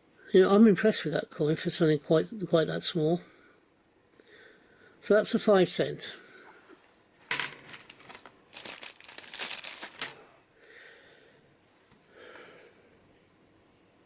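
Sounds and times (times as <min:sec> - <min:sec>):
packaging crinkling: 0:07.3 - 0:10.3.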